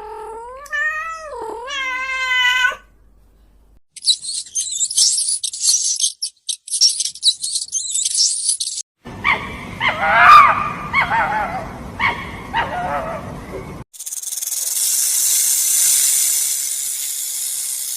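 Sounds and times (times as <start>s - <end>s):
high-pitched chirping and trilling: 4.0s - 8.8s
dog yelping barks: 9.2s - 13.3s.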